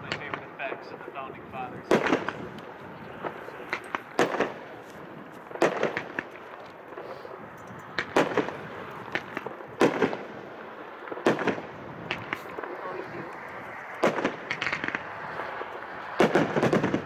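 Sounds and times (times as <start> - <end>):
fireworks loud reports: 0.0 - 17.0
small firework pops: 1.9 - 7.1, 8.0 - 10.3, 11.1 - 17.0.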